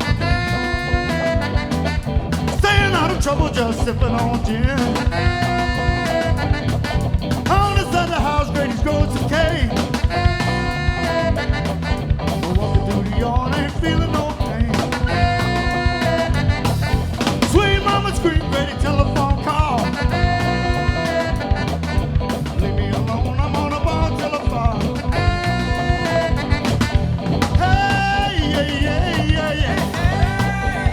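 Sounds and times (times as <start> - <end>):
band playing upbeat music: 0.0 - 30.9
drums keeping steady beat: 0.0 - 30.9
pitch-bending lead line: 0.0 - 30.9.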